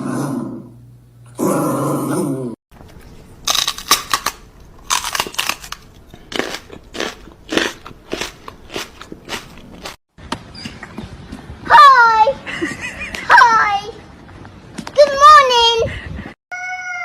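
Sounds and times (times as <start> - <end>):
sharp crunches: 3.4 - 10.0.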